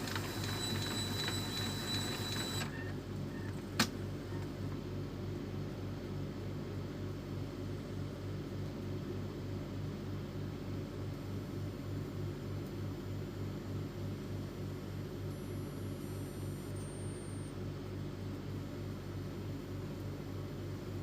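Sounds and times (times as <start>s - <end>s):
printer motor pulsing hum: 0.0s - 6.1s, 11.0s - 21.0s.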